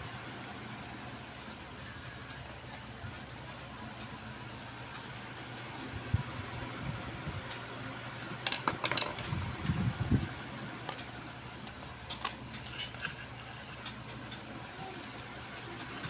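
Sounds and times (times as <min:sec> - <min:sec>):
electric fan hum: 0:00.0 - 0:16.0.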